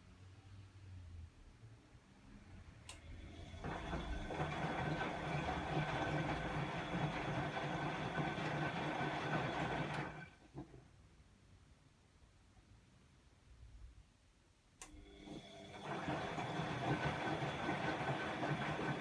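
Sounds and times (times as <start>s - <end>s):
washing machine motor humming: 3.2s - 10.7s, 15.0s - 19.0s.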